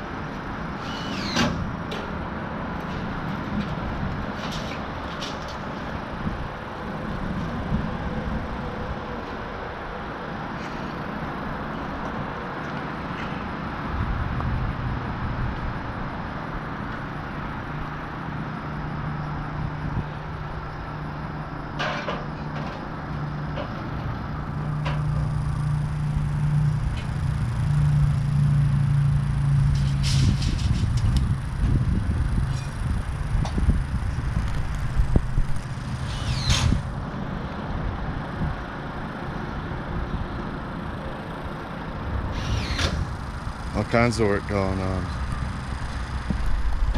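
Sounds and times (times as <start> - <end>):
engine humming: 0.0 - 46.9
low rumbling noise: 22.6 - 46.9.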